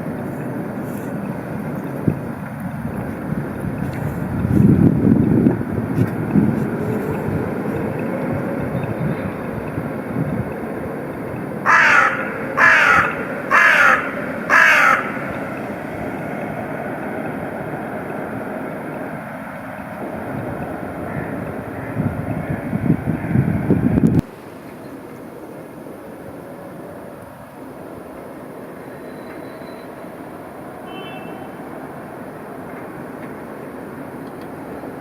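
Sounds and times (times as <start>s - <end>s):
low street noise: 0.0s - 35.0s
wind: 0.0s - 35.0s
crow cawing: 11.6s - 16.0s, 21.0s - 22.6s.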